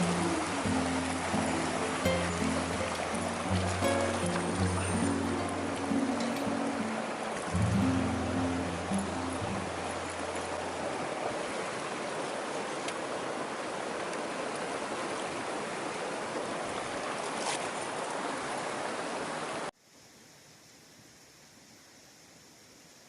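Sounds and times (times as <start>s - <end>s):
faint hiss: 0.0s - 12.4s, 19.7s - 23.0s
stream water rushing: 0.0s - 19.7s.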